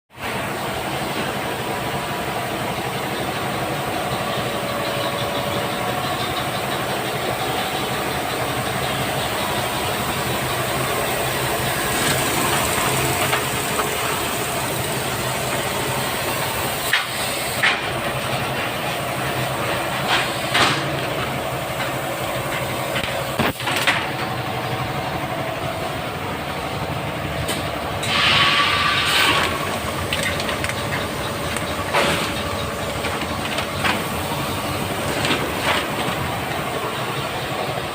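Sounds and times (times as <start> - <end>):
machine humming and hissing: 0.2 - 37.9
burst of hissing air: 28.0 - 29.6.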